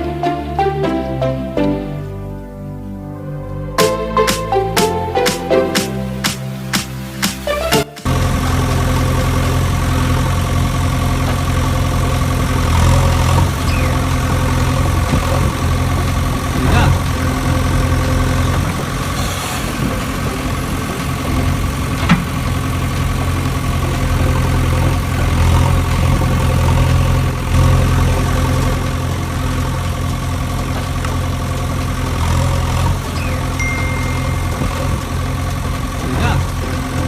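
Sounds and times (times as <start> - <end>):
engine idling hum: 8.1 - 37.0.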